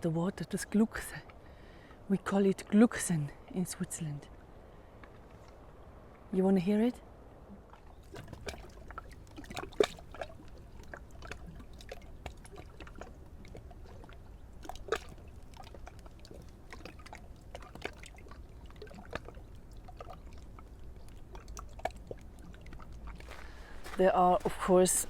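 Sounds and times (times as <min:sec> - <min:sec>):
lake water gurgling at shore: 0:07.0 - 0:25.0.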